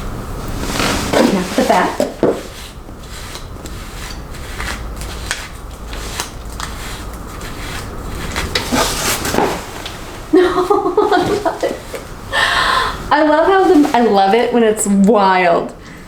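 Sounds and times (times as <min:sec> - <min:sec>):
hairbrush rasping through hair: 0:00.5 - 0:12.2.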